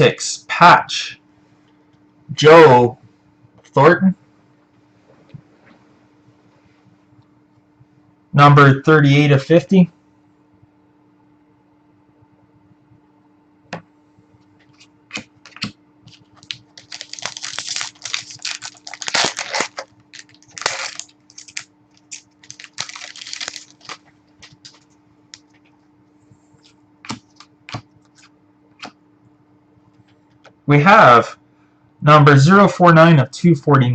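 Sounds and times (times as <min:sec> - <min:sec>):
faint steady hum: 0:00.0 - 0:33.9
cards clicking and rustling: 0:14.6 - 0:25.7, 0:26.6 - 0:29.0.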